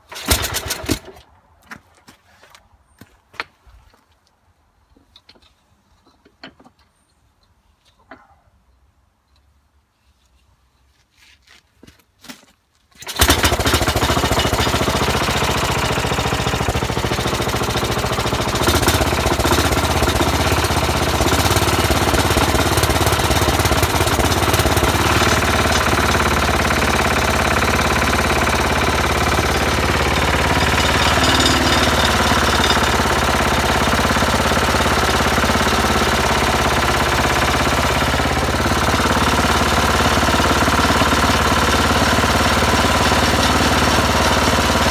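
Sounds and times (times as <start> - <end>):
rope pull start: 0.0 - 1.2, 13.0 - 44.9
small engine running with pulsing beat: 13.2 - 44.9.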